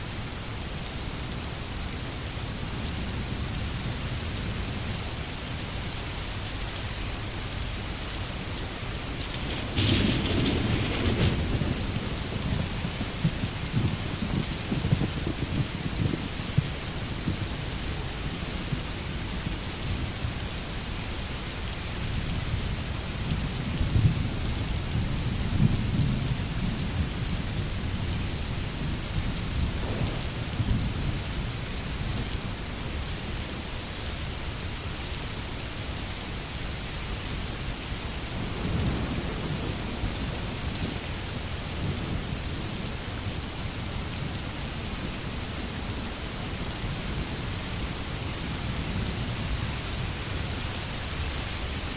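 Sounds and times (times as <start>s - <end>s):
steady rain falling: 0.0s - 51.9s
distant thunder rumbling: 8.3s - 19.6s, 28.7s - 32.5s, 38.2s - 46.1s.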